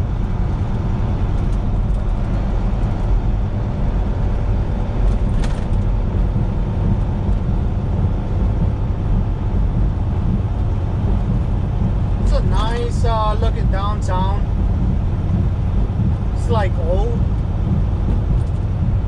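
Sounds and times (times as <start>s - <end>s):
road rumble: 0.0s - 19.0s
truck engine drone: 0.0s - 19.0s.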